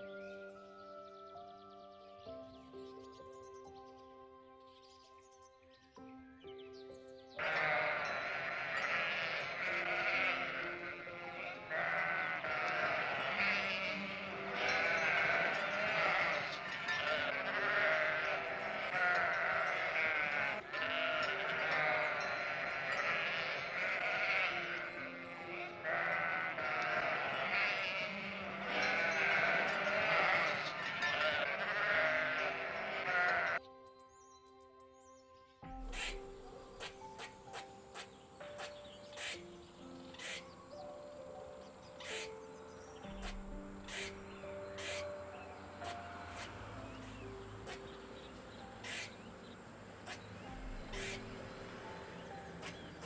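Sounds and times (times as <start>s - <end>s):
calm background music: 0.0s - 53.0s
sheep bleating: 7.4s - 33.6s, 50.1s - 51.2s.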